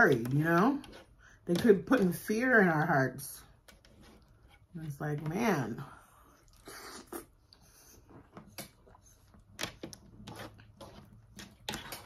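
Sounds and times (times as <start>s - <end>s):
mouth chewing wet food: 6.1s - 12.0s.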